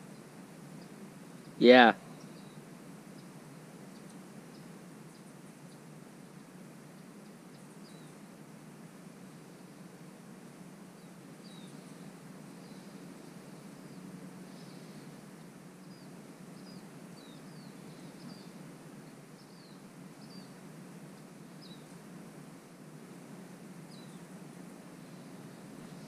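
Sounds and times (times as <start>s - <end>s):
small bird chirping: 15.8s - 18.6s, 21.6s - 22.0s.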